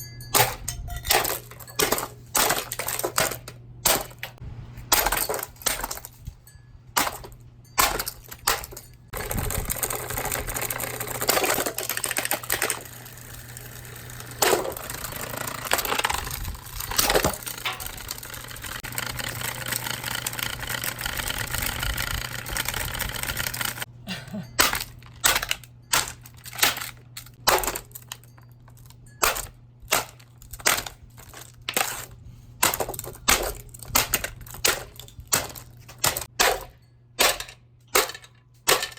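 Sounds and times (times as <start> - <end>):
sharp metallic impacts: 0.0 - 9.7, 31.7 - 38.9.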